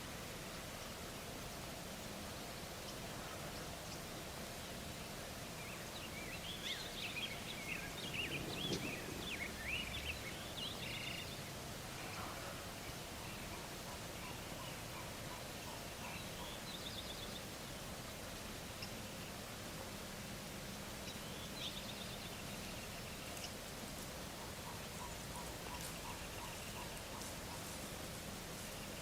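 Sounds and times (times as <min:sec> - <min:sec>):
steady background hiss: 0:00.0 - 0:29.0
birds chirping: 0:05.6 - 0:17.6, 0:24.3 - 0:27.9.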